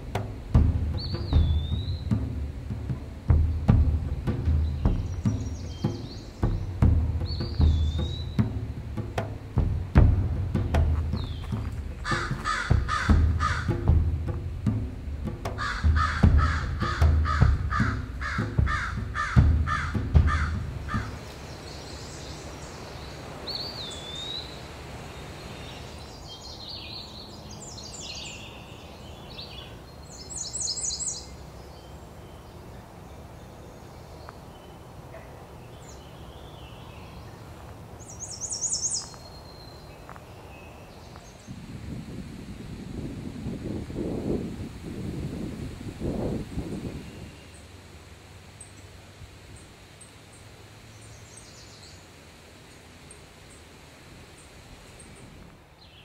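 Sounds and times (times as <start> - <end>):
low thuds: 0.0 - 21.4
short high bird songs: 1.0 - 2.1, 4.6 - 8.6, 10.6 - 12.6, 20.9 - 41.6
harsh caw-like bird calls: 12.0 - 13.9, 15.6 - 21.3.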